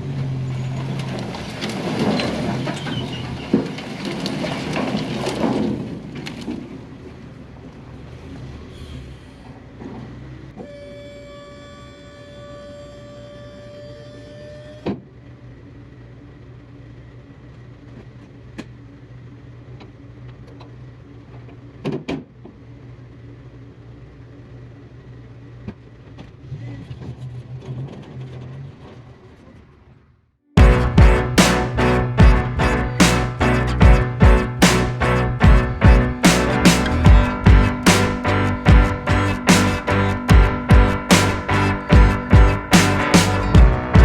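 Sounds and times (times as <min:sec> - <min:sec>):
vehicle engine running: 0:30.6 - 0:44.0.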